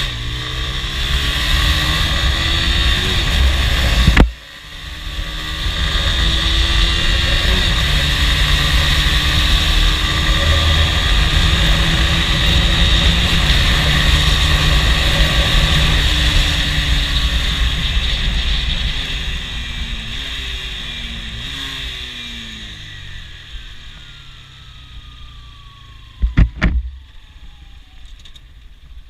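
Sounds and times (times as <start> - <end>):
motorcycle engine at high revs: 0.0 - 28.0
wind rush on microphone: 1.8 - 4.3.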